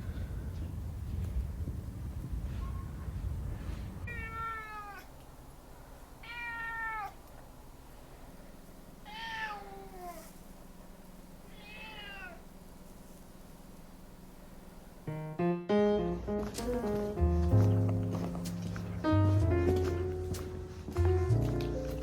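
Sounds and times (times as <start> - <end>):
cat meowing: 4.1 - 5.2, 6.2 - 7.2, 9.0 - 10.4, 11.5 - 12.5.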